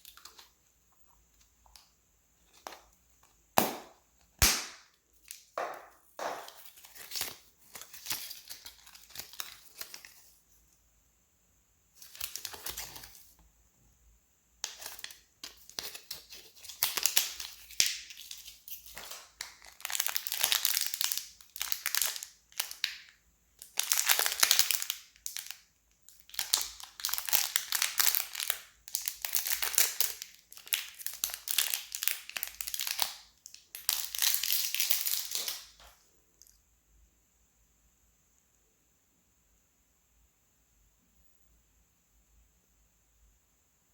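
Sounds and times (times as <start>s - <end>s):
packaging crinkling and tearing: 6.2s - 10.2s, 12.0s - 13.3s, 14.6s - 35.9s.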